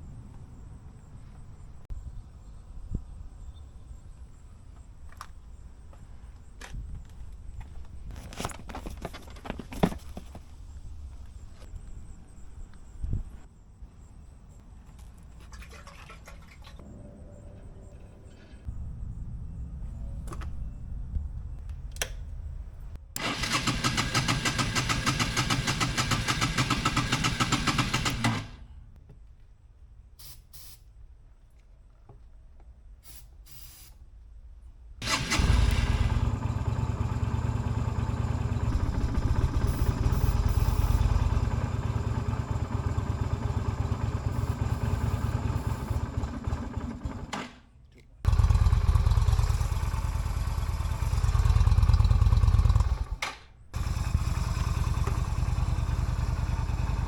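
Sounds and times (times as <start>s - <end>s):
electric starter cranking: 23.2s - 28.7s, 35.0s - 38.0s
motorcycle engine running unevenly: 35.0s - 47.3s, 48.3s - 53.2s, 53.8s - 57.0s.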